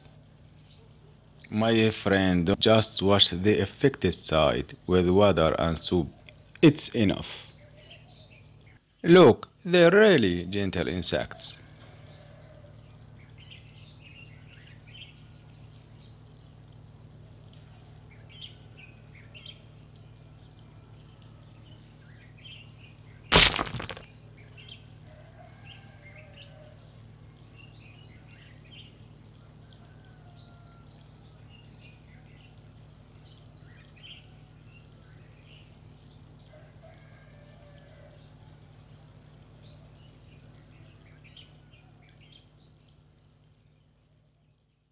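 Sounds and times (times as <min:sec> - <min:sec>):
small birds chirping: 0:00.0 - 0:02.8.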